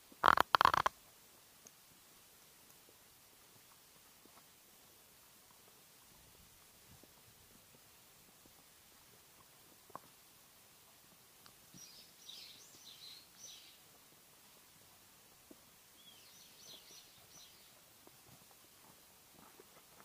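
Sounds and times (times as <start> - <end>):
quiet outdoor hush: 0.0 - 20.0
faint bird chirping: 11.7 - 14.0, 15.9 - 17.9.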